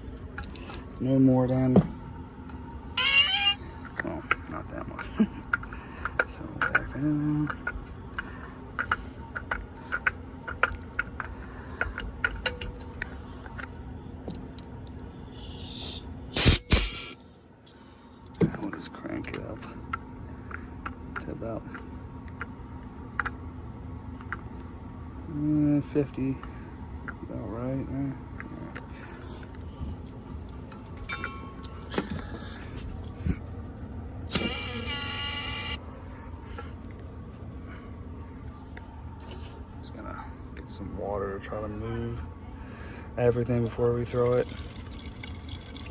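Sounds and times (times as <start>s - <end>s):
steady low hum: 0.0s - 45.9s
pressurized gas hissing: 15.2s - 17.2s, 22.9s - 30.1s, 34.3s - 35.8s
short hiss: 15.2s - 17.2s, 34.3s - 35.8s.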